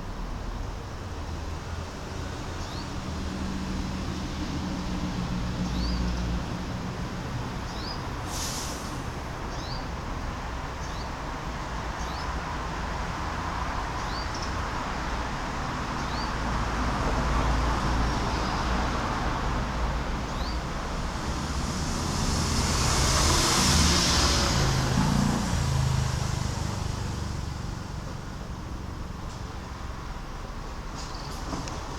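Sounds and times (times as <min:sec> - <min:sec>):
road traffic noise: 0:00.0 - 0:31.9
vehicle passing: 0:16.5 - 0:30.2.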